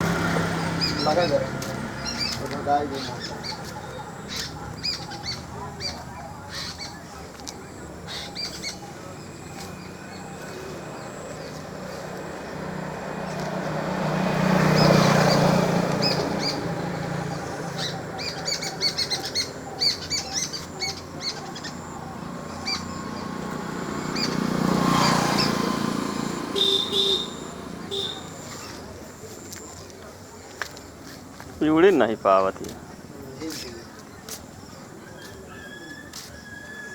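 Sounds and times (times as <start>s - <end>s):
vehicle passing: 0.0s - 35.5s.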